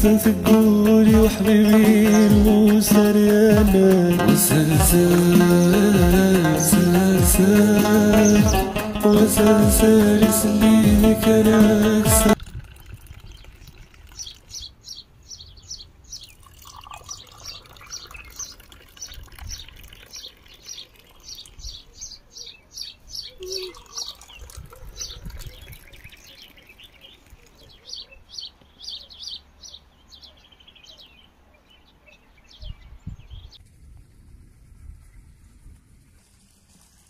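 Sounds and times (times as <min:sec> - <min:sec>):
small bird chirping: 0:12.6 - 0:33.6.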